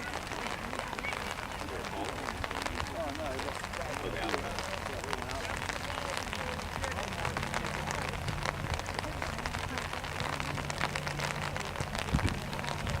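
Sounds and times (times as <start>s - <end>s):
rain pattering: 0.0s - 13.0s.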